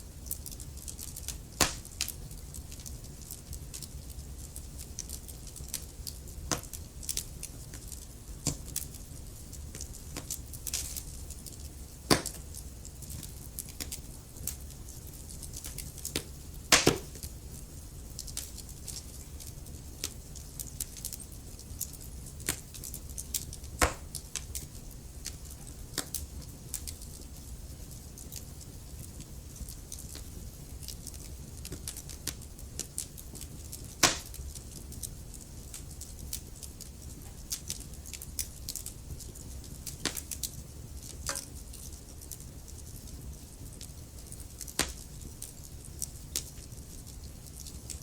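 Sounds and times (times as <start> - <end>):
wood fire burning: 0.0 - 48.0.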